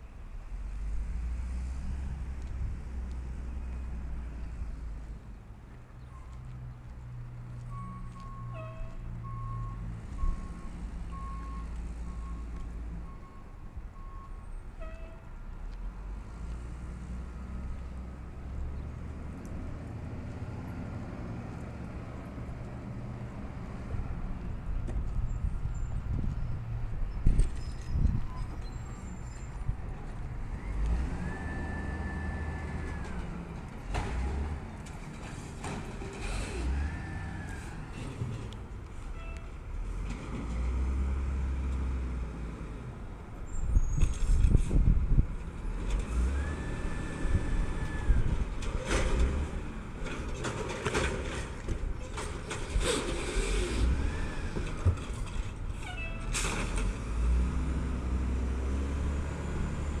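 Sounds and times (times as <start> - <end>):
diesel engine revving: 15.9 - 24.1, 30.2 - 38.6, 39.8 - 50.3, 52.5 - 55.6, 56.3 - 60.0.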